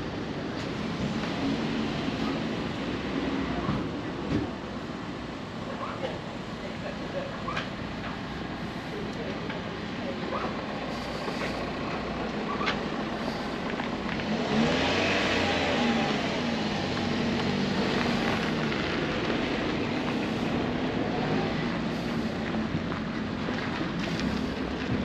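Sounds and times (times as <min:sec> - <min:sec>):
traffic noise: 0:00.0 - 0:25.0
car engine running: 0:07.9 - 0:25.0.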